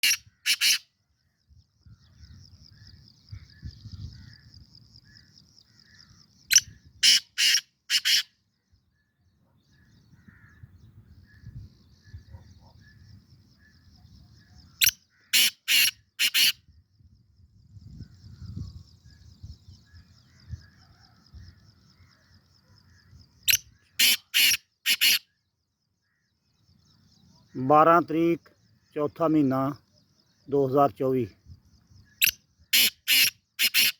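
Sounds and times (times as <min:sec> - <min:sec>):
bird calling harsh sharp notes: 0:00.0 - 0:00.9, 0:06.5 - 0:08.3, 0:14.8 - 0:16.6, 0:23.5 - 0:25.3, 0:32.1 - 0:33.9.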